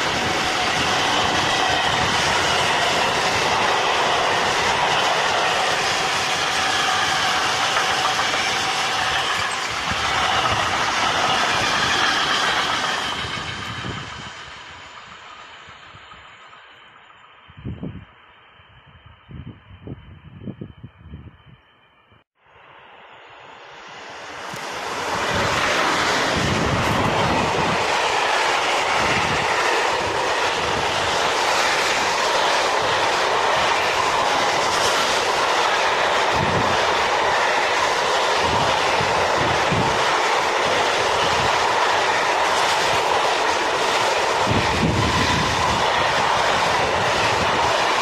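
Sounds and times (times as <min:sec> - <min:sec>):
steel wheels rolling on rail: 0:00.0 - 0:21.9, 0:22.8 - 0:48.0.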